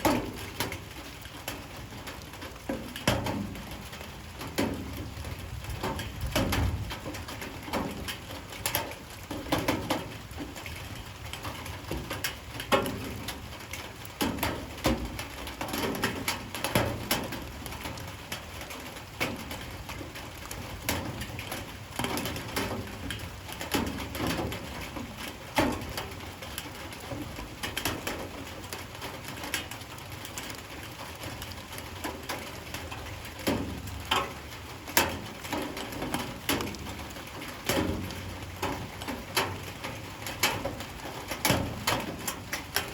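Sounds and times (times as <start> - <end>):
light rain falling: 0.0 - 42.9.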